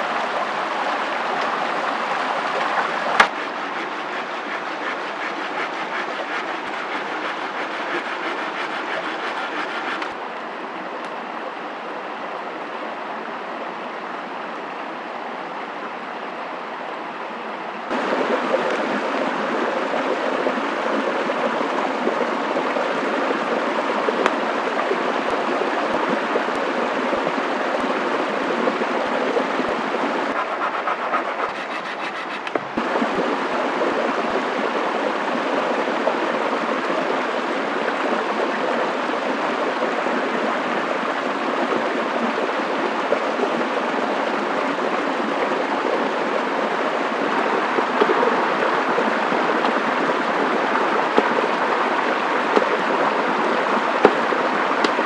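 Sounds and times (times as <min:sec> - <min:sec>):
flowing water rushing: 0:00.0 - 0:55.0
faint clicks and taps: 0:03.2 - 0:10.2.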